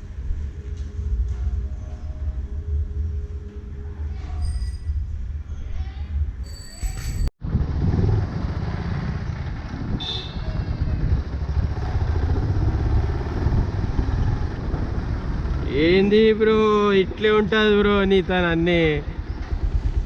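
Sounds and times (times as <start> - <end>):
road noise: 0.0 - 20.0
motorcycle engine rumble: 7.4 - 20.0.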